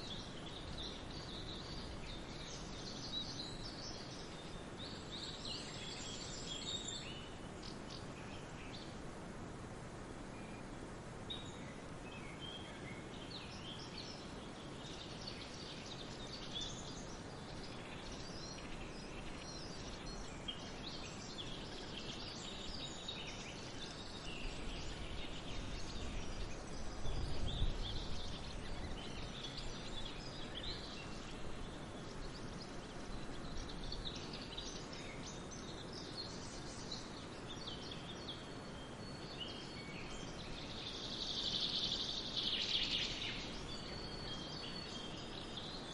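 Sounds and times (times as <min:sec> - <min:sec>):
birds chirping and singing: 0:00.0 - 0:08.9, 0:11.3 - 0:45.9
wind in the trees: 0:00.0 - 0:45.9.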